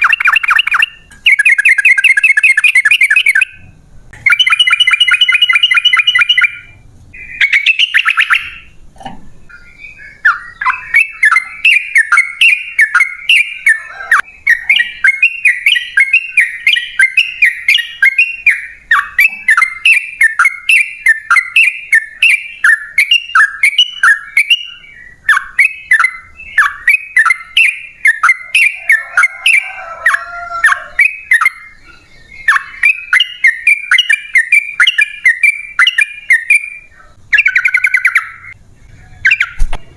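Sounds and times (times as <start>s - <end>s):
bird harsh calls: 0.0s - 8.8s, 9.4s - 39.7s
bird bubbling chirps: 0.0s - 38.6s.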